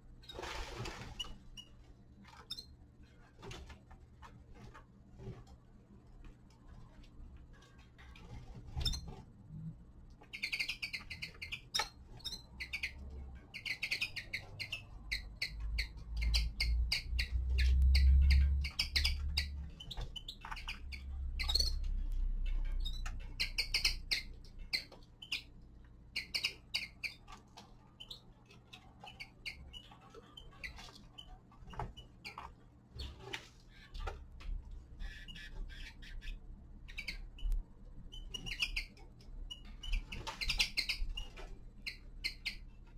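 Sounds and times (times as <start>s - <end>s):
finches chirping: 10.2s - 34.0s, 34.9s - 42.9s.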